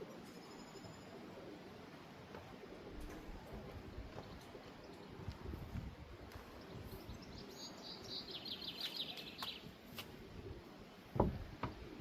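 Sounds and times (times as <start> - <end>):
dull thump: 11.1 - 11.9.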